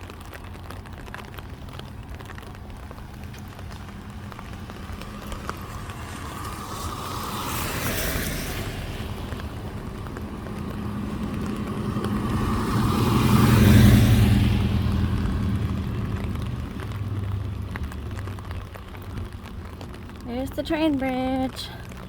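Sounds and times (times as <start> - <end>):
low engine rumble: 0.0 - 22.0
tyre hiss of passing vehicle: 5.1 - 16.6.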